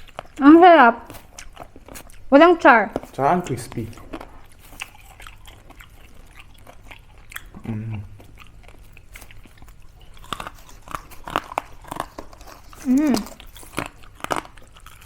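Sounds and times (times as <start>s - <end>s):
crunchy bites and chewing: 0.0s - 0.4s, 1.0s - 2.3s, 2.9s - 15.0s
person humming: 7.6s - 8.2s, 12.8s - 13.4s.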